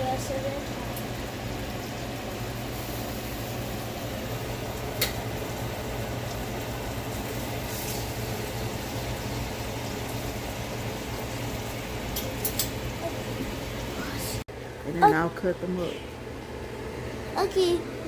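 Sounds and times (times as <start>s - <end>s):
burgers sizzling in skillet: 0.0s - 14.3s.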